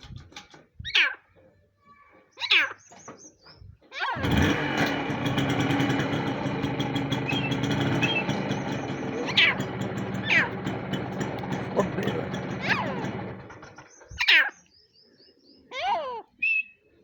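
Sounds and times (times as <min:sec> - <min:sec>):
motorcycle engine starting and idling: 0:00.0 - 0:00.8, 0:04.0 - 0:14.3.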